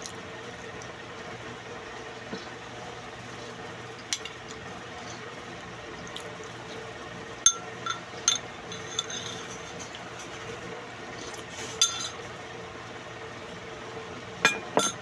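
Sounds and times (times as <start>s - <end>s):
low background hum: 0.0s - 15.0s
cutlery clinking on a plate: 7.5s - 10.3s, 11.8s - 12.2s, 14.5s - 15.0s.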